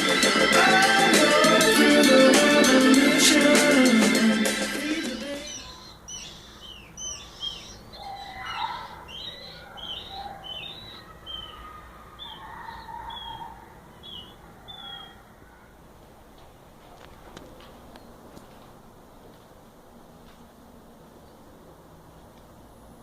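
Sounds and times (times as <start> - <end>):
birds chirping: 0.0 - 15.9.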